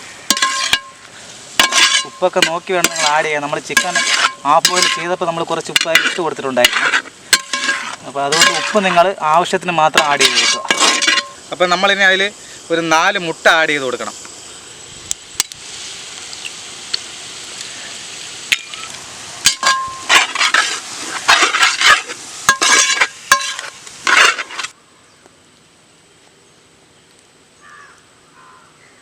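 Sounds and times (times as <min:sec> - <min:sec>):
food sizzling in a pan: 0:00.0 - 0:24.8
metal spatula scraping pan: 0:00.3 - 0:01.0, 0:01.6 - 0:09.0, 0:09.9 - 0:11.4, 0:19.4 - 0:24.8.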